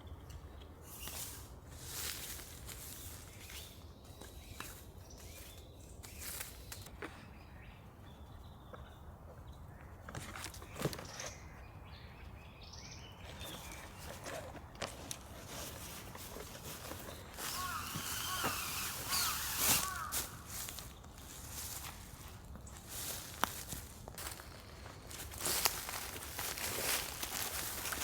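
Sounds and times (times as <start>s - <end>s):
rustling and handling noises: 0.9s - 7.0s, 13.2s - 28.0s
footsteps: 13.6s - 28.0s.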